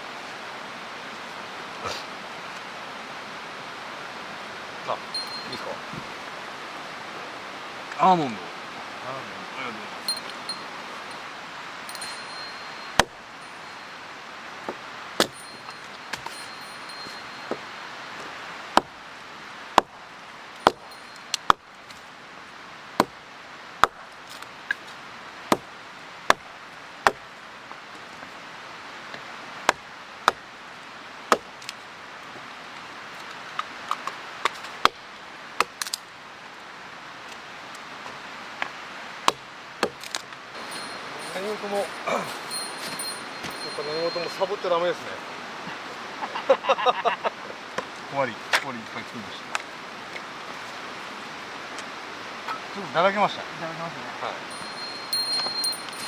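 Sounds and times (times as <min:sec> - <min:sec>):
campfire hiss: 0:00.0 - 0:56.0
campfire wood pops and snaps: 0:14.6 - 0:15.4, 0:18.7 - 0:19.0, 0:19.7 - 0:22.0, 0:23.0 - 0:23.2, 0:23.8 - 0:24.9, 0:33.2 - 0:35.0, 0:35.6 - 0:36.1, 0:38.6 - 0:40.4.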